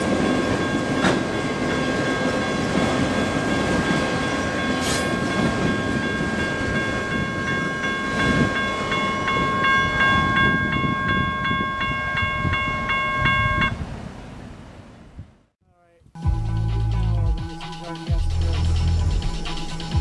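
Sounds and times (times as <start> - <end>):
train wheels clacking on rails: 0.0 - 11.6
railroad crossing bell ringing: 0.0 - 13.8.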